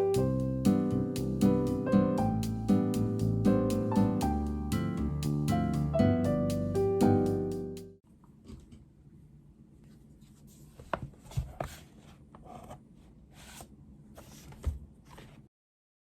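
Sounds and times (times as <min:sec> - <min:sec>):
low room hum: 0:08.0 - 0:15.5.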